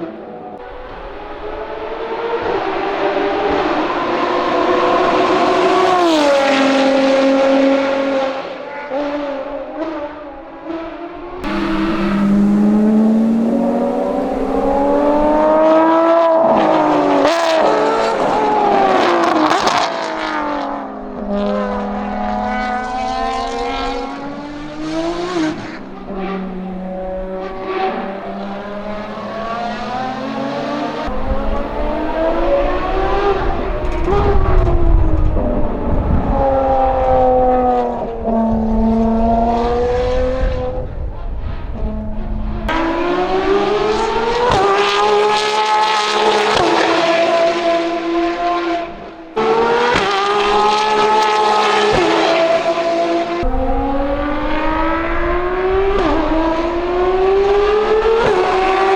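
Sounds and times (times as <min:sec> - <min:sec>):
exhaust cracks: 0:11.4 - 0:16.0, 0:28.8 - 0:34.8, 0:42.7 - 0:45.6, 0:53.4 - 0:57.4
race car engine accelerating: 0:11.4 - 0:20.7, 0:21.3 - 0:40.6, 0:41.5 - 0:58.9.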